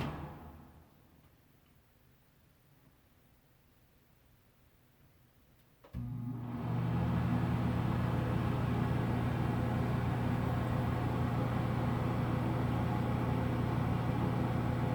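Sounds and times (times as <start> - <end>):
exhaust fan motor hum: 6.0 - 14.9.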